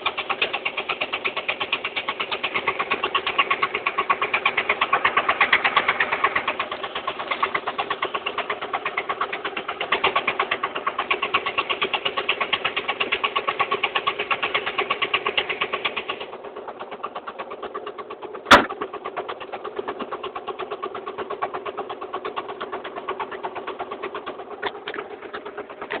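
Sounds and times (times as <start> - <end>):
engine running with fast putter: 0.0 - 26.0
sharp knock: 18.5 - 18.8.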